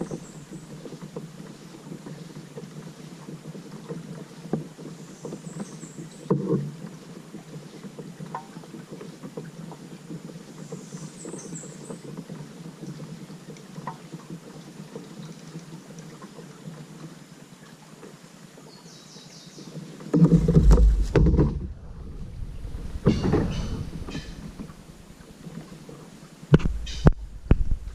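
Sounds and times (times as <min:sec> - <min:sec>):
small ticks and knocks: 0:00.0 - 0:18.2, 0:19.7 - 0:21.7
water sloshing around kayak: 0:00.0 - 0:27.9
loud deep burst: 0:20.6 - 0:24.6.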